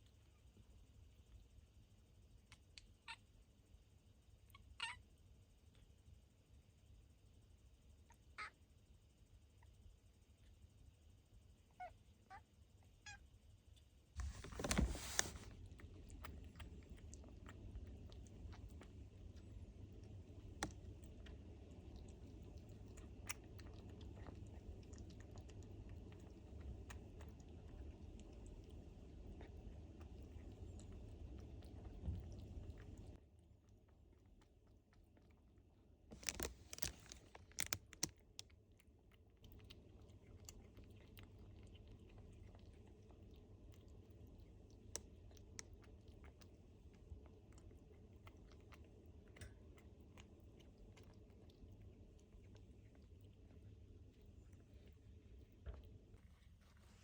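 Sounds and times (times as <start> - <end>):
rustling: 14.2 - 17.2, 36.1 - 38.1, 55.8 - 57.0
kitten chewing crunchy food: 14.2 - 57.0.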